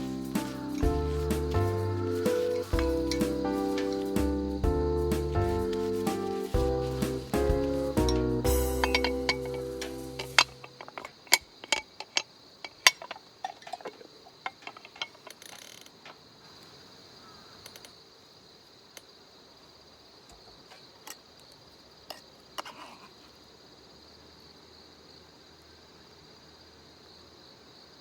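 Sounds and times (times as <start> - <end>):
metal utensils clinking: 0.0 - 15.3
insects chirring: 0.0 - 28.0.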